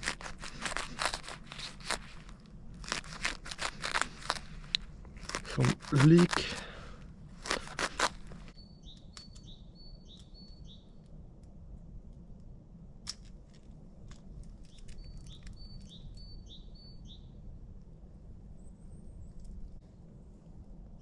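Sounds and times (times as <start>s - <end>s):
songbird whistling: 8.6s - 11.0s, 14.9s - 17.4s.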